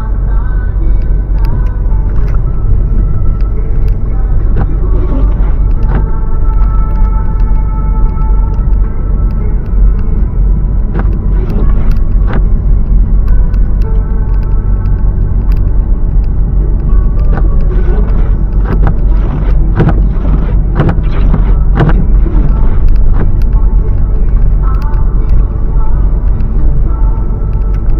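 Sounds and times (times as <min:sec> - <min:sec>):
car road and engine rumble: 0:00.0 - 0:27.9
car thumping over bumps: 0:18.6 - 0:23.5.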